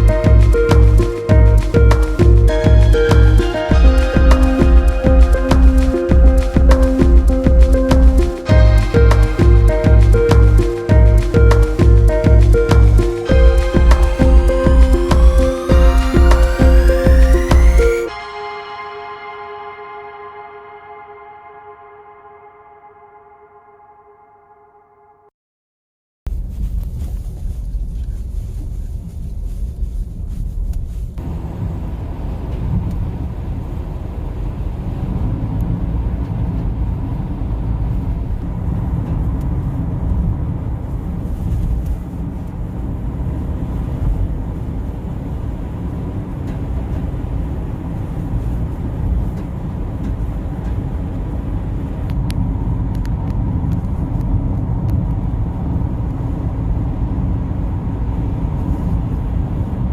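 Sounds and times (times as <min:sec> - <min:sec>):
road noise: 0:00.0 - 0:18.2
car engine and tyre rumble: 0:26.4 - 0:59.9.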